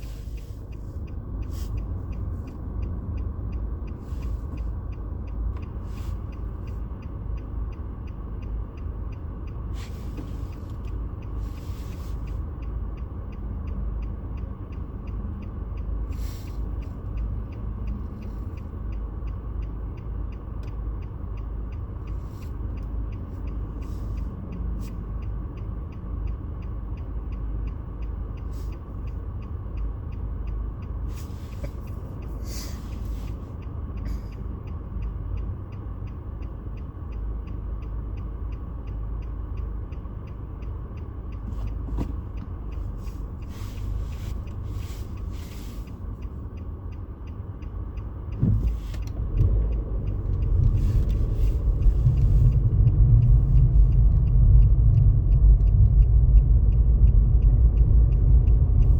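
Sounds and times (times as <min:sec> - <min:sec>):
steady low rumble: 0:00.0 - 0:58.9.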